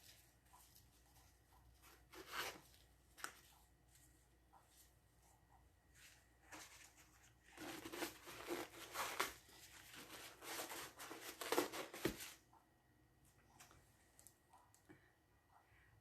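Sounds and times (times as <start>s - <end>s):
crinkly material crumpling: 5.9s - 12.4s.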